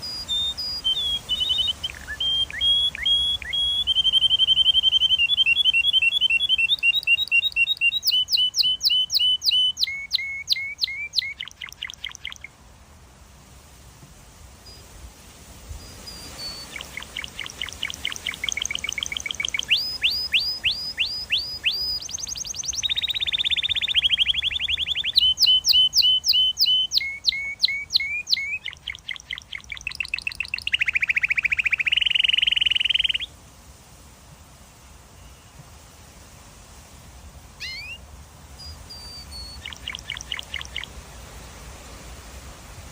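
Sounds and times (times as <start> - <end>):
canary singing trills: 0.0 - 12.5, 15.8 - 33.3, 37.6 - 38.0, 38.6 - 41.0.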